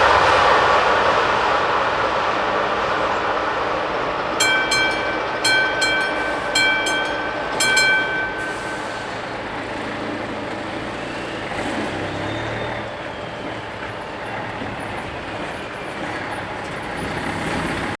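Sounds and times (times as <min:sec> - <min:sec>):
freight train rolling past: 0:00.0 - 0:18.0
level crossing bells ringing: 0:04.4 - 0:14.5.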